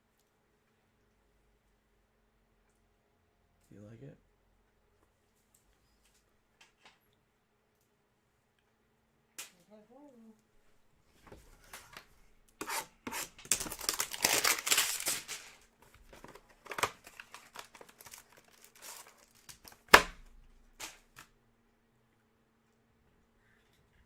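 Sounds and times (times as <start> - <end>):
handling noises: 11.1 - 21.2
packaging tearing and crinkling: 13.1 - 21.3.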